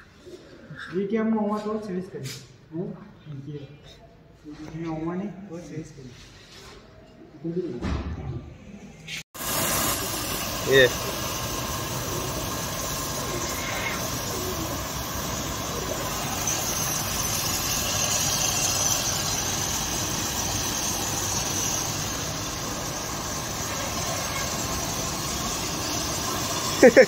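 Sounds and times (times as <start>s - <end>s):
steady hiss: 9.4s - 27.0s.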